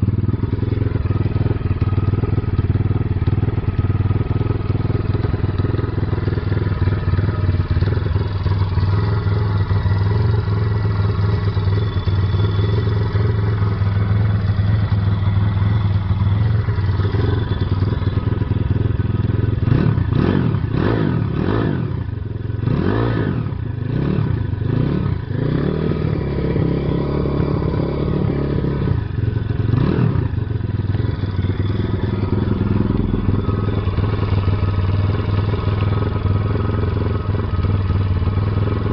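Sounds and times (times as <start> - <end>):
pit bike engine idling: 0.0 - 38.9
engine throttle blips: 27.5 - 37.8.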